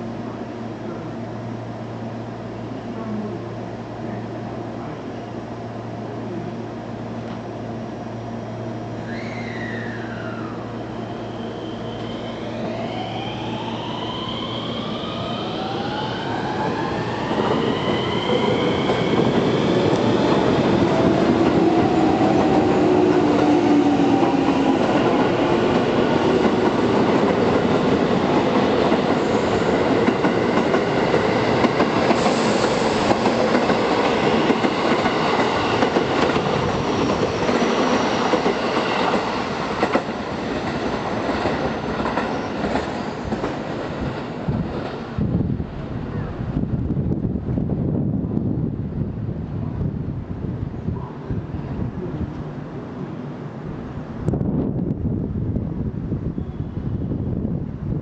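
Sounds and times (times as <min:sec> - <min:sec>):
train wheels rumbling on rail: 0:15.6 - 0:58.0.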